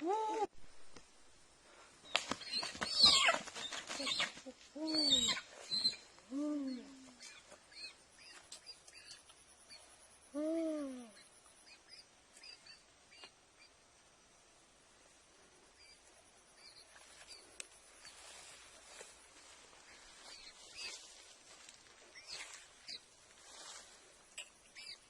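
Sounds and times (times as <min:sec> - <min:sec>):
wings flapping: 0:02.1 - 0:04.6
hen squawking: 0:02.5 - 0:06.0.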